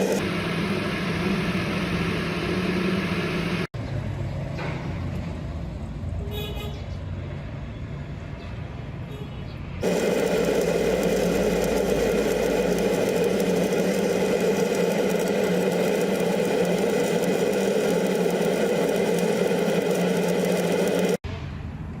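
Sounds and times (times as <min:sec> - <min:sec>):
arc welding crackle and buzz: 0:09.8 - 0:21.2.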